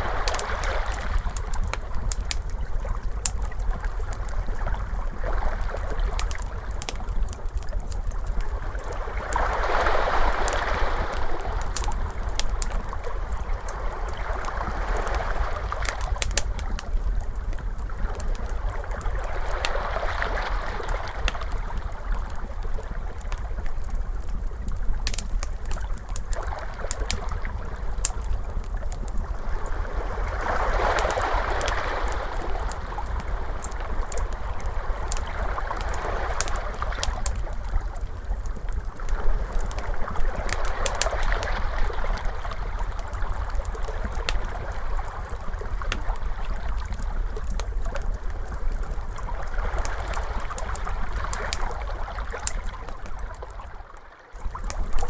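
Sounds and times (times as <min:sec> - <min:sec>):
wood fire crackling: 0:00.0 - 0:53.7, 0:54.4 - 0:55.0
constant low rumble: 0:00.0 - 0:55.0
ocean waves washing in: 0:09.0 - 0:12.2, 0:29.3 - 0:37.0.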